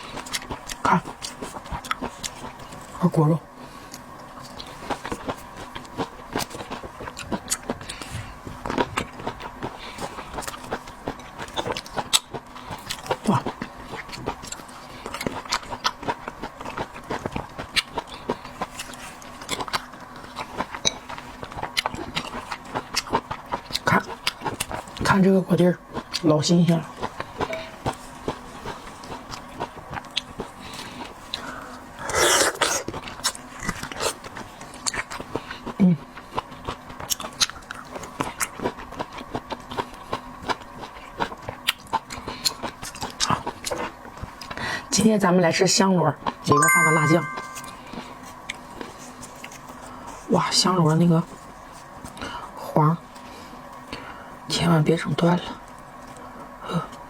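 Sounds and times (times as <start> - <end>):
wet chewing and smacking: 0.0 - 3.0, 3.9 - 44.6
close-miked eating: 0.0 - 57.0.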